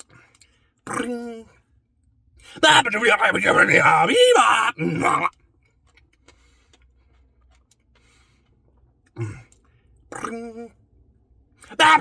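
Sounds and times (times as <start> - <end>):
man's held vocal sound: 2.6 - 5.3, 11.7 - 12.0
man breathing softly: 8.0 - 8.6.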